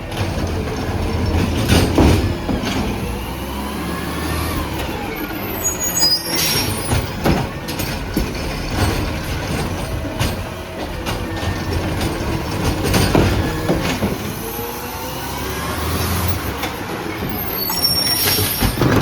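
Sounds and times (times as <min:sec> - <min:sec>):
metal clunks and knocks: 0:00.0 - 0:03.3, 0:06.6 - 0:14.4, 0:18.3 - 0:19.0
diesel engine running: 0:00.0 - 0:19.0.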